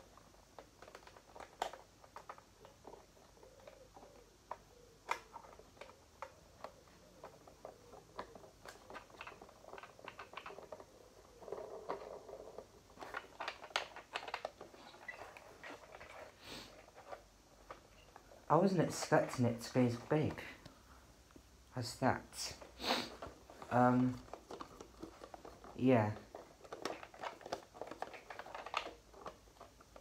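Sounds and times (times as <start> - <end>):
packaging rustling: 0.0 - 20.8, 22.5 - 30.0
plastic toy clicking: 0.2 - 16.2, 23.7 - 30.0.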